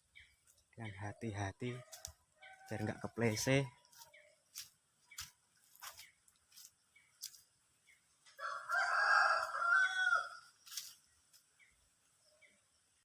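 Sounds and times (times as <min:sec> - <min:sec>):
rooster crowing: 0:08.4 - 0:10.5.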